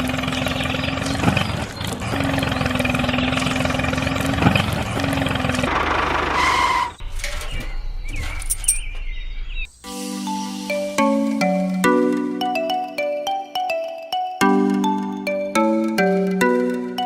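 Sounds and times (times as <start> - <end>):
faint motor whines: 0.0 - 6.9.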